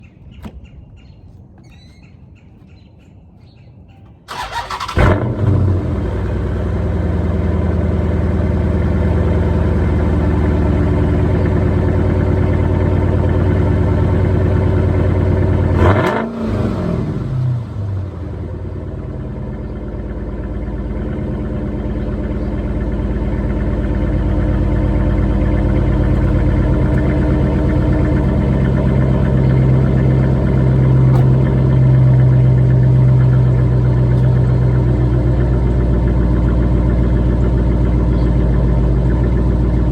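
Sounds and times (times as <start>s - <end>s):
faint bird chirps: 0.0s - 4.3s, 38.0s - 38.6s
engine revving: 4.3s - 18.4s, 21.7s - 39.2s
car engine starting and idling: 4.3s - 39.9s.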